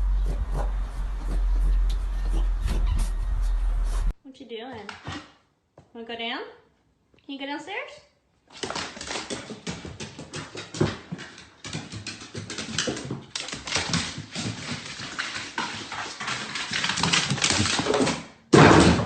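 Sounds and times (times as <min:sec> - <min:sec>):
dog claws tapping on hard floor: 0:08.5 - 0:18.3.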